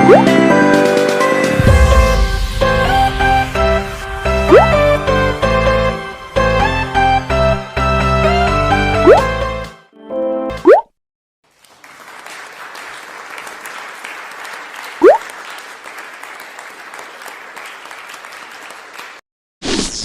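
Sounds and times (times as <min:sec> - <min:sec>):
short rising swoop: 0:01.5 - 0:07.2
crowd applauding: 0:11.5 - 0:19.2.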